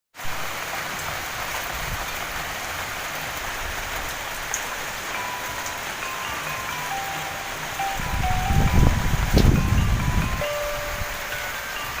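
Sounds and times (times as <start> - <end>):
steady rain falling: 0.2 - 12.0
faint simple tune: 5.2 - 12.0.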